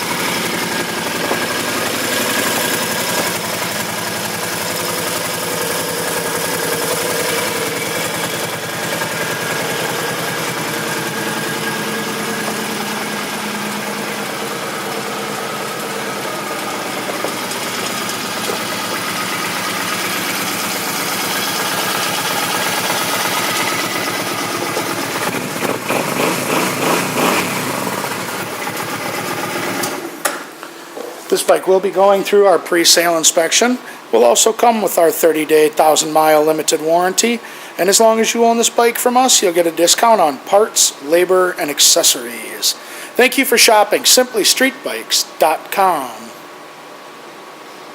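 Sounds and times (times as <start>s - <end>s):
motorcycle engine idling: 0.0s - 29.8s.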